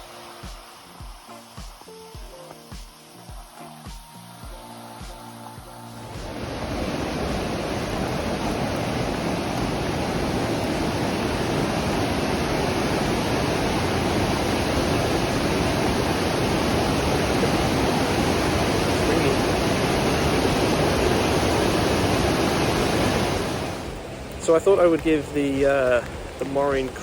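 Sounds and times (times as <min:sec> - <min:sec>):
creek rushing: 0:00.0 - 0:27.0.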